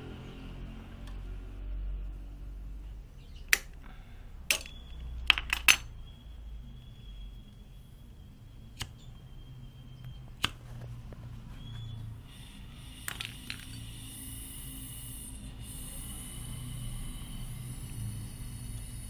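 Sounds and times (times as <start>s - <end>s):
low hum: 0.0s - 19.0s
metal tools clinking: 4.5s - 5.9s
faint high whistle: 5.9s - 10.4s, 11.5s - 12.9s.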